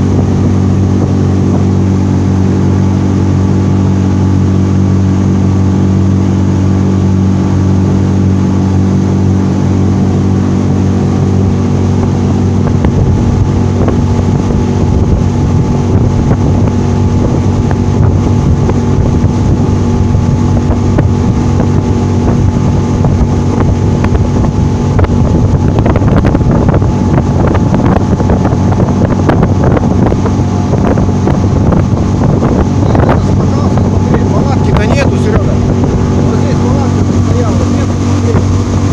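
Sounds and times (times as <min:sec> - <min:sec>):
outboard motor running: 0:00.0 - 0:38.9
rushing water: 0:00.0 - 0:38.9
wind buffeting microphone: 0:00.0 - 0:38.9.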